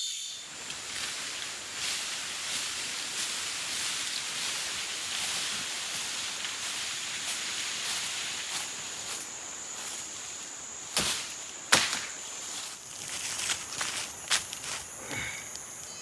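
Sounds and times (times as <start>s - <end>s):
hiss: 0.0s - 11.4s
insects droning: 0.0s - 16.0s.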